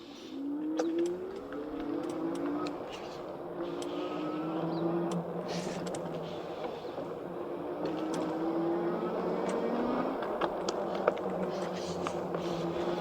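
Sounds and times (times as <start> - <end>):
light clicks: 0.8 - 4.0, 5.0 - 6.8, 9.4 - 12.4
tyre and wind noise: 0.8 - 13.0.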